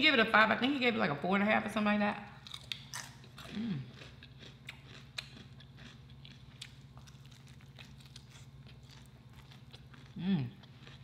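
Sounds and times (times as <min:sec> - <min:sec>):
steady low hum: 0:00.0 - 0:11.0
chewing crispy chicken: 0:02.4 - 0:11.0.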